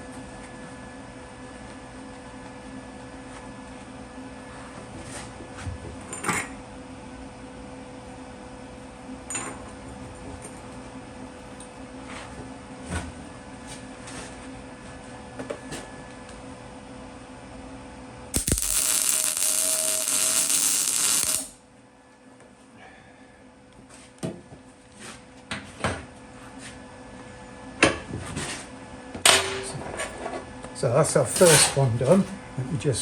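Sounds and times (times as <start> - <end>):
steady hum: 18.4 - 21.6
welder hissing: 18.4 - 21.6.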